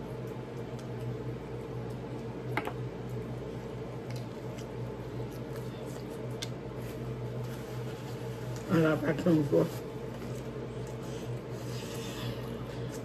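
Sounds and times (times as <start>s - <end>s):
steady low hum: 0.0s - 13.0s
chewing mouth sounds: 4.0s - 6.8s.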